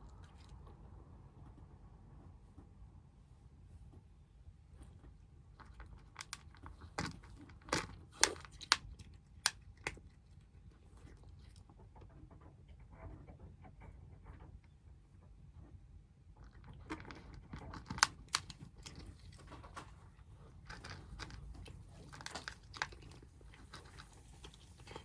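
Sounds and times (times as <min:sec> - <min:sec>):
kittens crunching food: 0:00.0 - 0:00.8, 0:04.8 - 0:12.1, 0:16.3 - 0:25.0.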